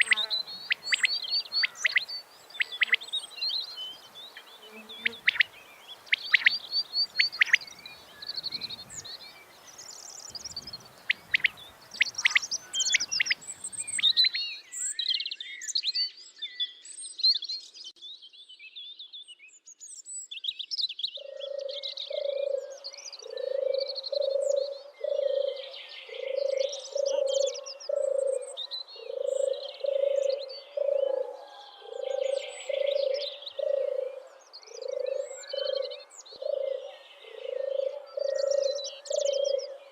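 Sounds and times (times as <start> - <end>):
frog croaking: 0.0 - 3.0
songbirds chirping and trilling: 0.0 - 39.9.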